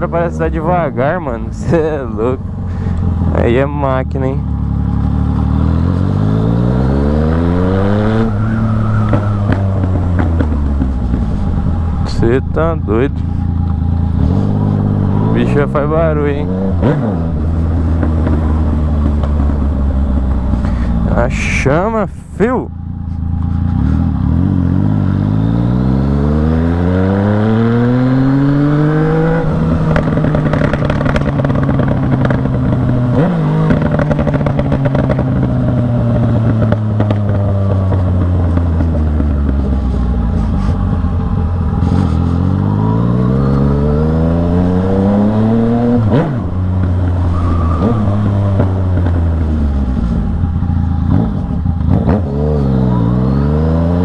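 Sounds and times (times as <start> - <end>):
motorcycle engine revving: 0.0 - 22.1, 22.7 - 54.0
sharp exhaust pops: 8.9 - 11.7, 29.8 - 43.7.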